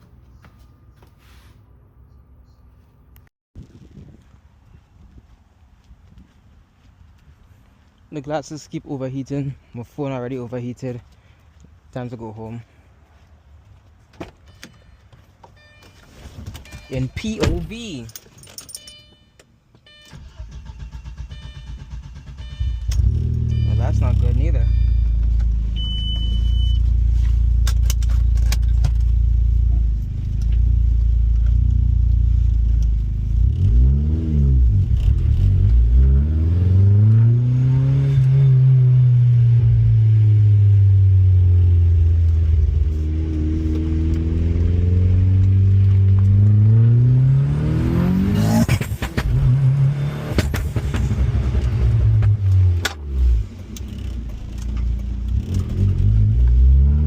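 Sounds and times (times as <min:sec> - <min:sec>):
car engine revving: 0:31.4 - 0:57.0.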